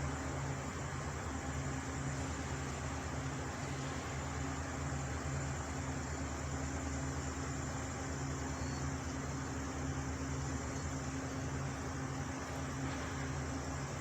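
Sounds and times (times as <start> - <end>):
machine hum with constant tones: 0.0 - 14.0.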